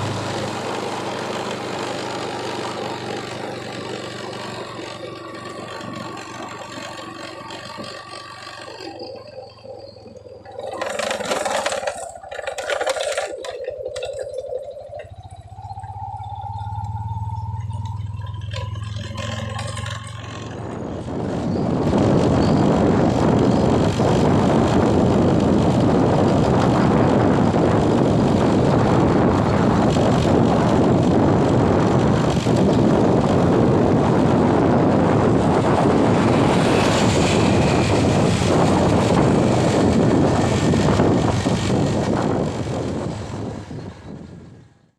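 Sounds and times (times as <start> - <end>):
low hum: 13.1 - 44.9.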